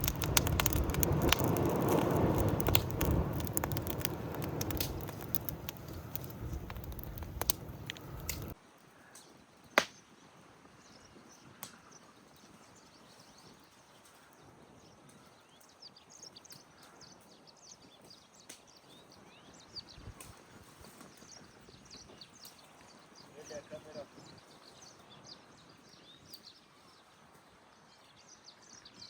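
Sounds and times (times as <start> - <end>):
noisy crackling: 0.0 - 8.6.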